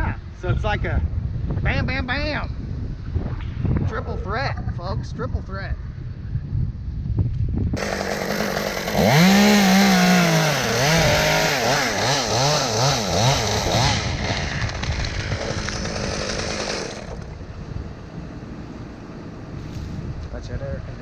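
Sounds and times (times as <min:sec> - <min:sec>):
chainsaw engine revving: 0:07.8 - 0:17.4.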